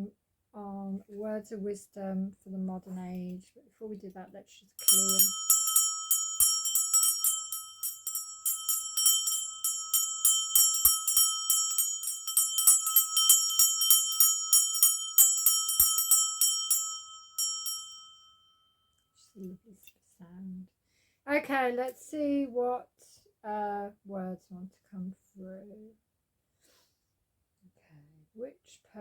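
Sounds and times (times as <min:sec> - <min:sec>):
small bell ringing rapidly: 0:04.8 - 0:18.6.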